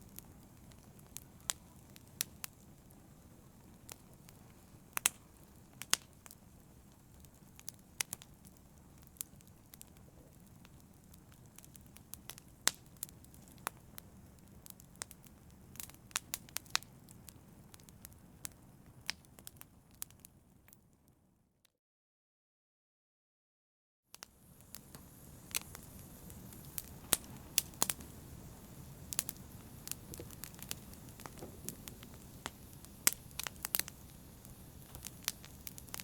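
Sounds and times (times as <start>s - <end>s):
fire crackling and popping: 0.0s - 20.8s, 24.2s - 36.0s
low rush of flame: 24.2s - 36.0s.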